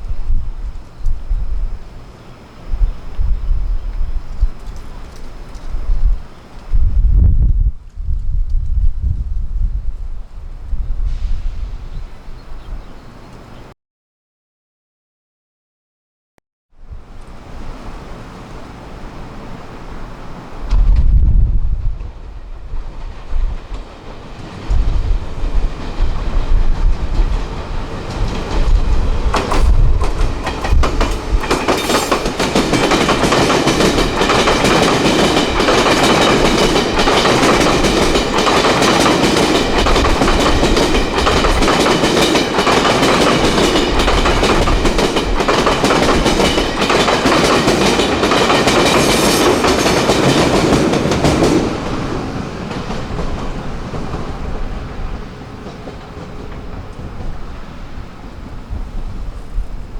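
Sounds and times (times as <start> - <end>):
wind buffeting microphone: 0.0 - 13.4, 16.8 - 59.9
train wheels clattering: 22.0 - 58.0.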